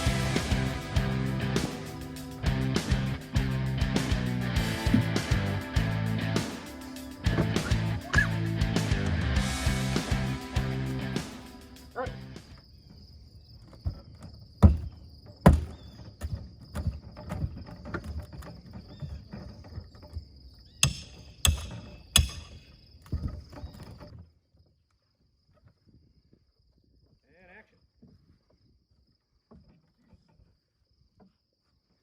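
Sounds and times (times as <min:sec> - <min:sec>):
music: 0:00.0 - 0:12.5
high insect trill: 0:00.0 - 0:24.2
sharp knocks and clatters: 0:13.8 - 0:24.2.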